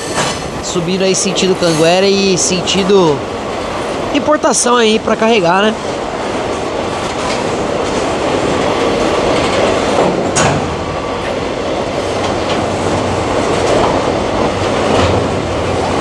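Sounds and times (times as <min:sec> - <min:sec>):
freight train wheels rumbling: 0:00.0 - 0:16.0
wheels clacking over track: 0:06.4 - 0:16.0.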